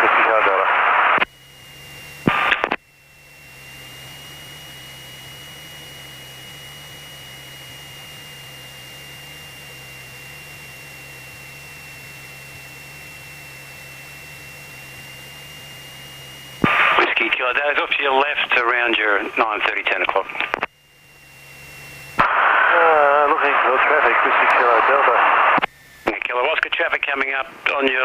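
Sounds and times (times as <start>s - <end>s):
radio burst: 0.0s - 1.3s, 2.3s - 2.8s, 16.6s - 20.7s, 22.2s - 28.0s
thin high whine: 0.0s - 28.0s.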